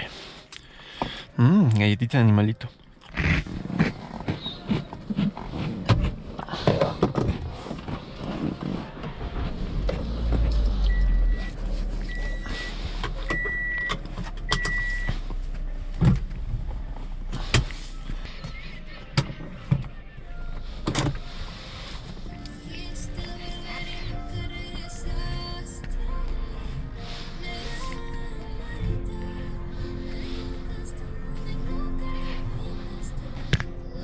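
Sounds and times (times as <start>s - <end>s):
car engine starting and idling: 6.1s - 34.0s
dashboard warning chime beeping: 10.6s - 15.2s.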